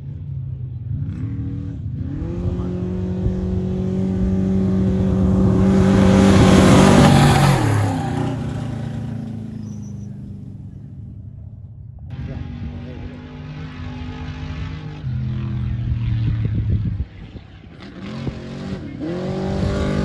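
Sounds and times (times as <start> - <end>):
off-road race vehicle engine at full throttle: 0.0 - 20.0.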